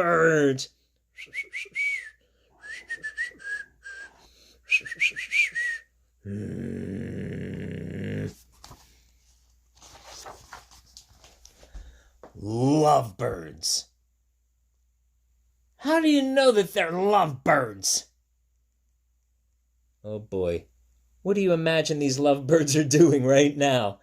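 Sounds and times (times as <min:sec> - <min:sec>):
person whistling bird tweets: 0:01.2 - 0:04.1, 0:04.7 - 0:05.8.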